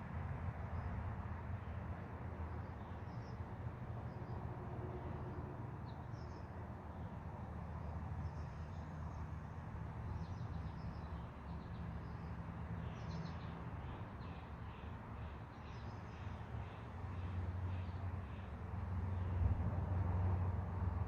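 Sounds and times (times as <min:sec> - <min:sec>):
songbirds chirping: 0:05.8 - 0:19.4.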